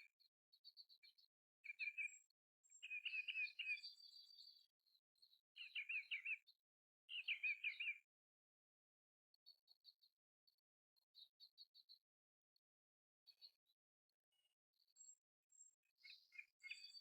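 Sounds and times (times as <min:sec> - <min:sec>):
bluebird singing: 0:00.0 - 0:08.1, 0:14.8 - 0:17.0.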